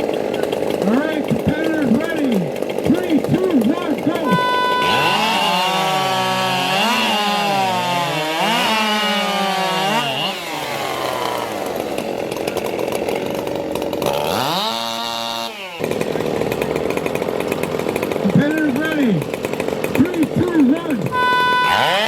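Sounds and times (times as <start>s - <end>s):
racing chainsaws revving: 0.0s - 22.0s.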